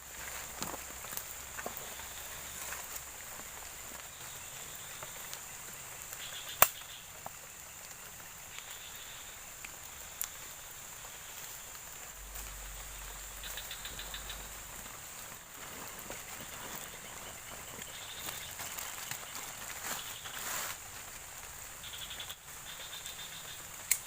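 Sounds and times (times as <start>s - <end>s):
high-pitched insect drone: 8.6s - 15.6s.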